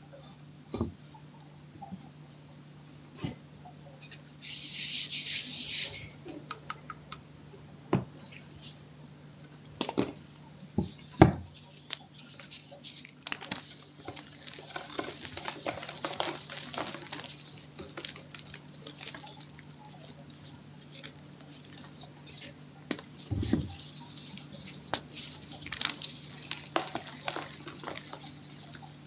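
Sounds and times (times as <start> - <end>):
chalk crunching and cracking: 11.6 - 29.0.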